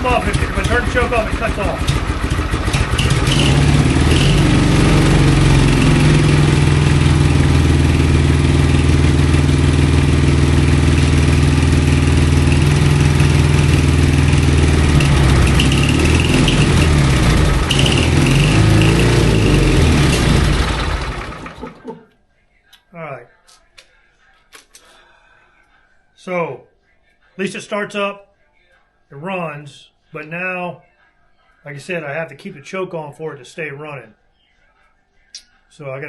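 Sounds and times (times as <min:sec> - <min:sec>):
motorcycle engine idling: 0:00.0 - 0:21.8.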